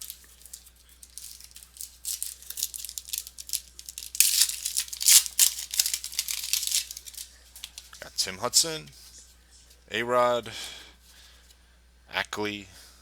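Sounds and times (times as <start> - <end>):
card pack wrapper crinkling and tearing: 0.0 - 8.0
cards rustling: 0.0 - 8.1.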